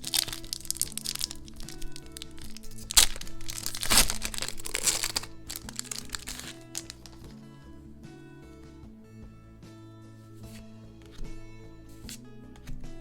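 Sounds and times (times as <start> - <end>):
packaging crinkling: 0.0 - 7.3
sharp crack: 0.0 - 7.3
soft background music: 0.0 - 13.0.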